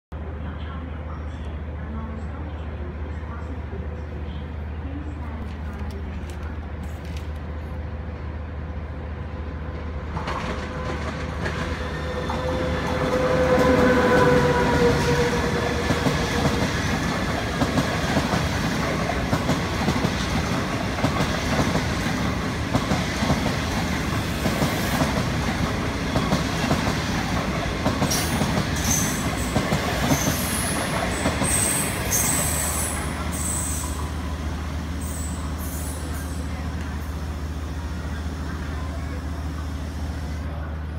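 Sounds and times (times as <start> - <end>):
train wheels rattling and clacking: 10.1 - 33.8.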